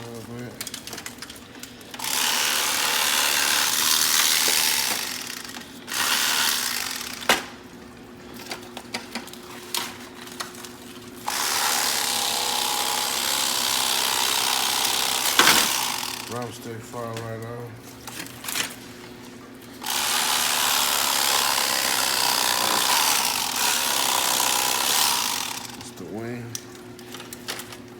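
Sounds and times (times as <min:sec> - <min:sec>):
electric knife motor buzzing: 0:02.0 - 0:07.6, 0:11.2 - 0:16.4, 0:19.8 - 0:25.9.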